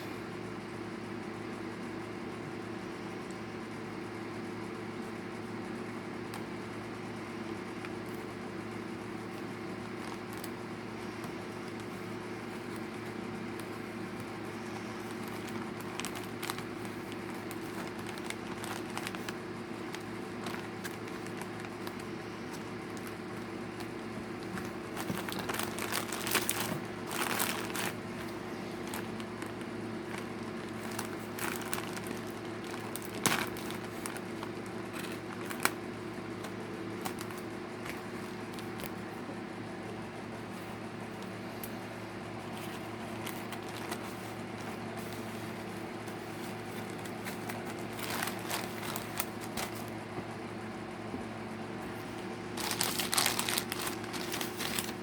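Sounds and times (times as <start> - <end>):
steady background hum: 0.0 - 55.0
plastic packaging crinkling: 9.2 - 39.2, 42.5 - 50.0, 52.0 - 55.0.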